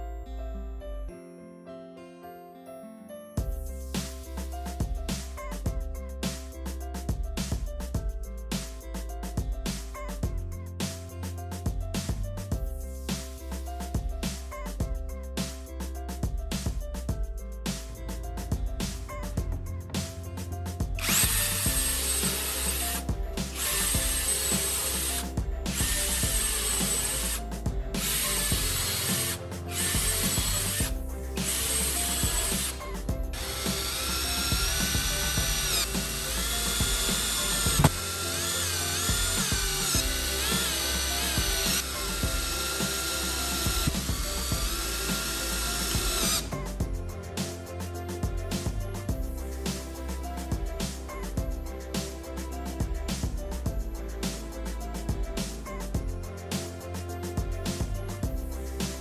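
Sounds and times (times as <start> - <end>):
background music: 0.0 - 59.0
electric power tool whining: 21.0 - 27.4, 28.0 - 46.5.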